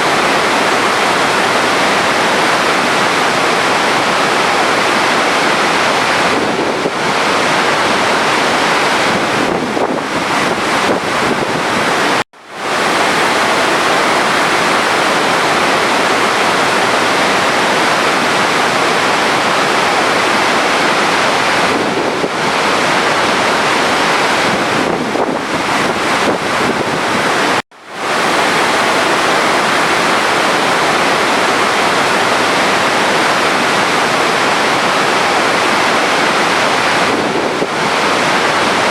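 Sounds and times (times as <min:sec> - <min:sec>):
water rushing: 0:00.0 - 0:38.9.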